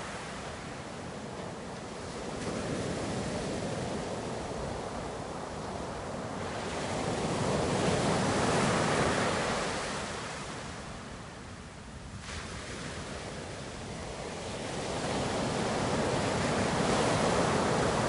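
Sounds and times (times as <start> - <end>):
ocean waves breaking: 12.2 - 18.0.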